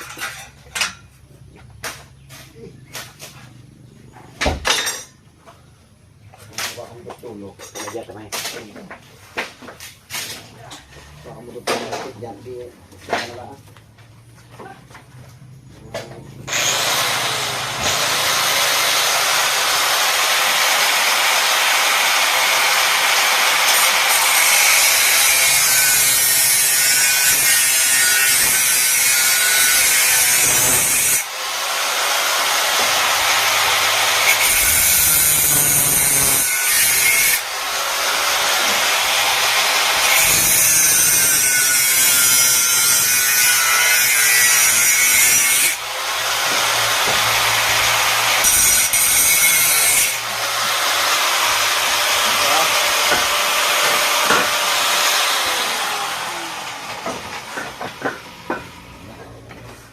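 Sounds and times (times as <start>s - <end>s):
power tool cutting: 16.4s - 59.0s.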